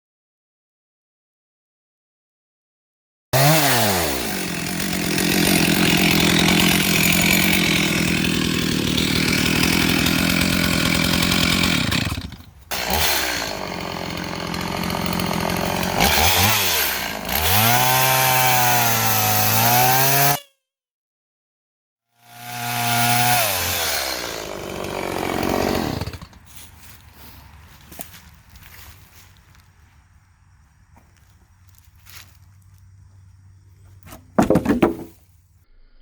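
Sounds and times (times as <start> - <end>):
chainsaw sawing through log: 3.4 - 20.4, 22.2 - 28.2, 34.0 - 35.1.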